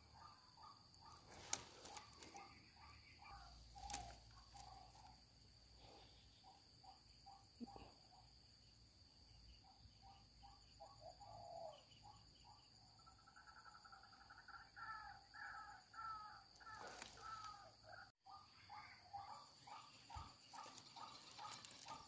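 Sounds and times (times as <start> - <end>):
faint bird calls: 0.0 - 8.7, 9.3 - 22.0
high insect drone: 19.5 - 22.0.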